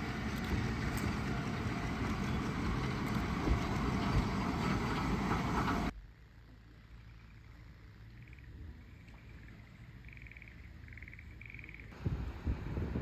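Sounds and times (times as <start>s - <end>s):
diesel railcar rumbling: 0.0s - 6.0s.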